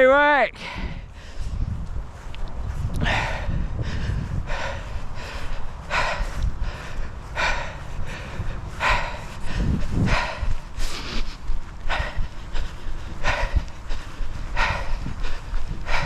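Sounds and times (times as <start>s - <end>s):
person breathing hard: 0.5s - 16.0s
low rumble: 0.6s - 16.0s.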